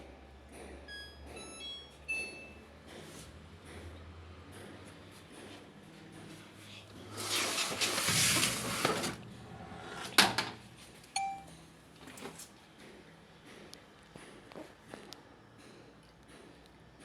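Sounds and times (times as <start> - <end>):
hissing rustling handling noise: 6.7 - 9.2.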